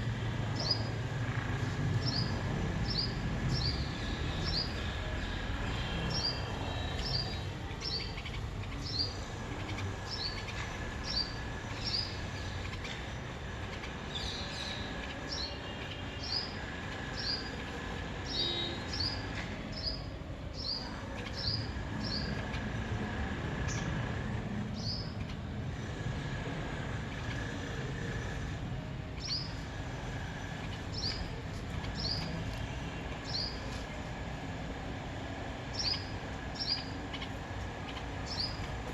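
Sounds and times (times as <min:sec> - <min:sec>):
bird chirping: 0:30.5 - 0:33.8, 0:35.7 - 0:38.9.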